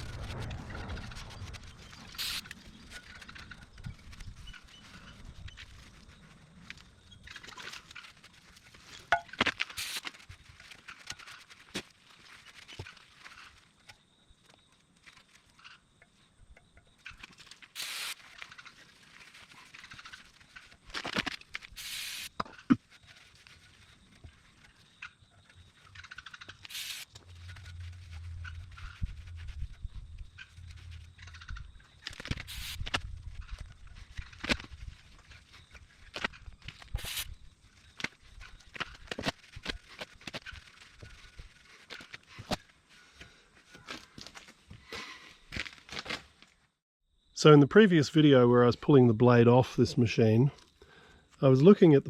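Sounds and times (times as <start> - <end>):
low hum: 0.0 - 6.4, 26.6 - 36.6
short hiss: 2.2 - 2.4, 17.8 - 18.2, 21.8 - 22.3, 26.7 - 27.1, 32.5 - 32.8, 37.0 - 37.3
metal scraping: 17.0 - 44.2.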